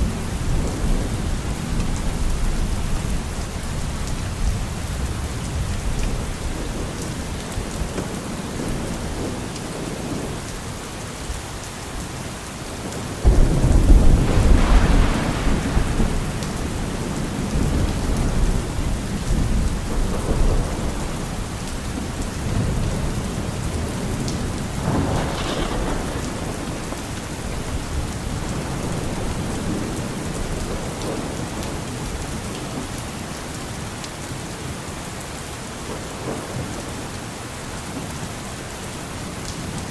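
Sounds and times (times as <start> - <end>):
thunder clap and rumble: 0.0 - 10.5, 12.9 - 32.7
steady rain: 0.0 - 39.9.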